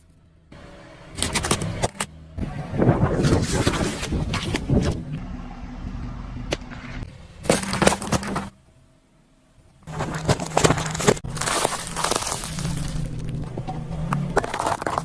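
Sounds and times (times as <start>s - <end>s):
car engine running: 0.0s - 15.0s
objects crunching and cracking: 9.8s - 15.0s.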